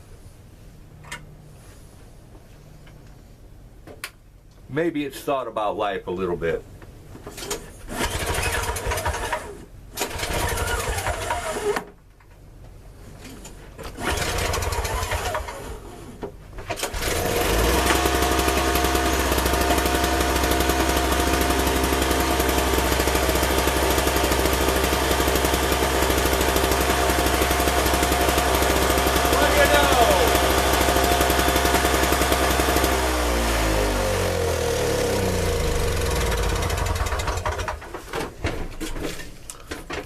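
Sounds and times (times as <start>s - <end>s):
snowblower engine starting: 7.9s - 11.9s, 13.8s - 38.0s.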